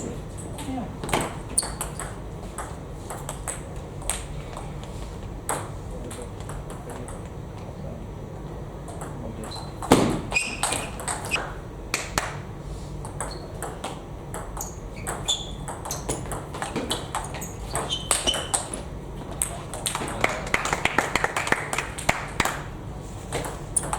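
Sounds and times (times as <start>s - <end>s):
loud knock: 9.8s - 10.4s.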